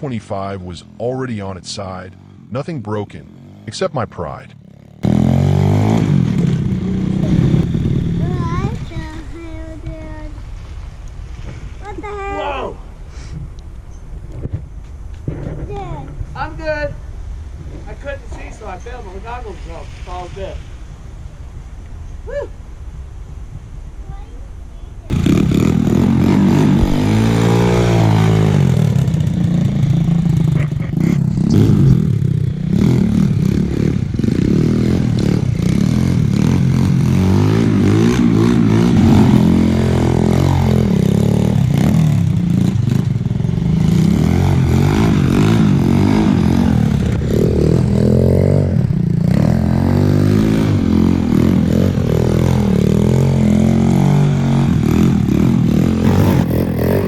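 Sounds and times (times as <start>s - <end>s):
dirt bike engine revving: 0.0s - 9.0s, 25.1s - 57.0s.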